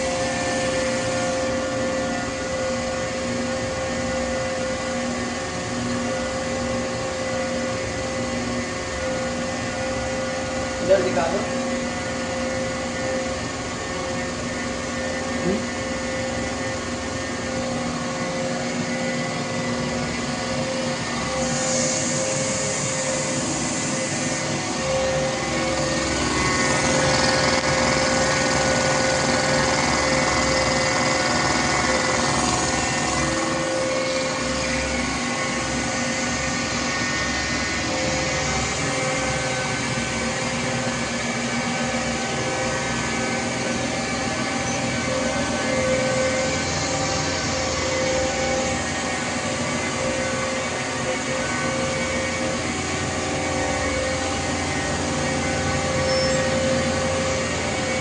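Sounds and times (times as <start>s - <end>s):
hydraulic pump whine: 0.0s - 58.0s
hiss: 21.3s - 24.6s.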